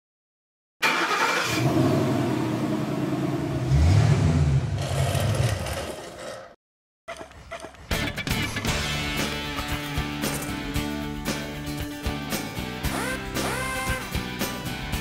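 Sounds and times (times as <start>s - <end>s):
car engine starting and revving: 0.8s - 6.3s.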